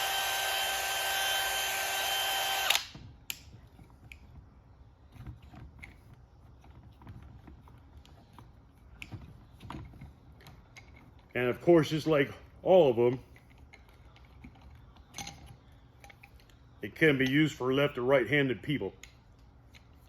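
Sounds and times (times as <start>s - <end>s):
cordless hammer drill running: 0.0s - 2.9s.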